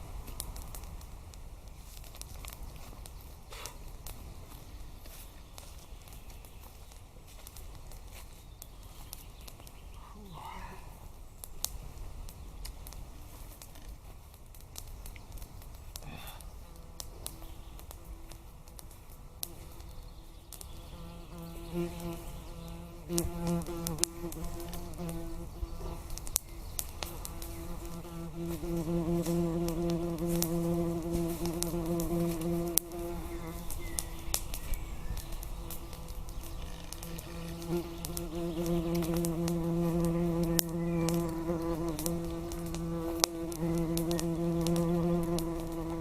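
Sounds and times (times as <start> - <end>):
flying insect buzzing: 20.8 - 46.0
sharp clicks: 33.6 - 45.9.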